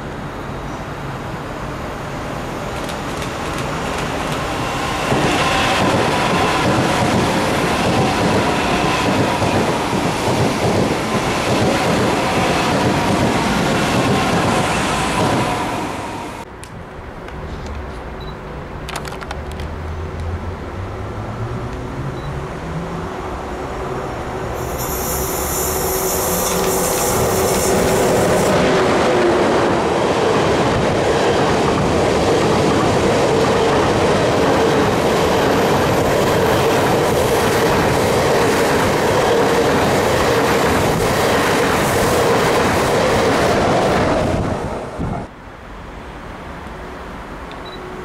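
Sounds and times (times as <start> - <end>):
high-speed train passing: 0.0 - 48.0
high hiss: 24.4 - 28.6.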